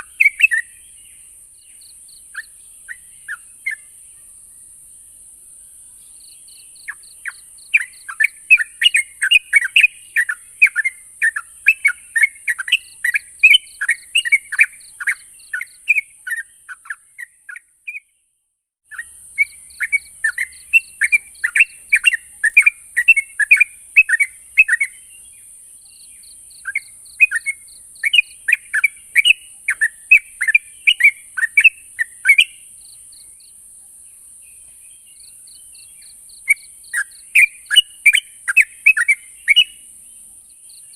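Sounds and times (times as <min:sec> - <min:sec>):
steady high-pitched hiss: 0:00.0 - 0:17.6, 0:18.9 - 0:40.9
bulbul chirping song: 0:00.0 - 0:18.2, 0:18.9 - 0:40.9.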